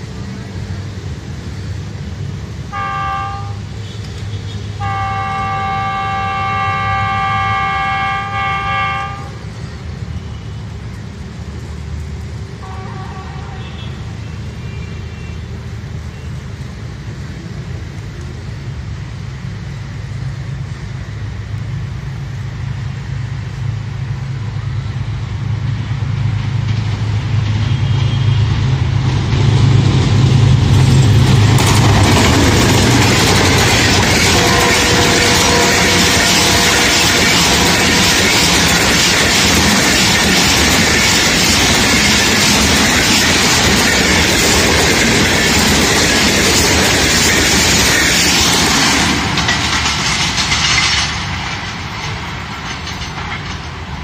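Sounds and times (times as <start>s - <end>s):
locomotive engine rumble: 0.0s - 54.0s
locomotive horn: 2.7s - 9.5s, 12.6s - 14.1s, 34.0s - 38.8s
train wheels clattering on rails: 24.0s - 54.0s.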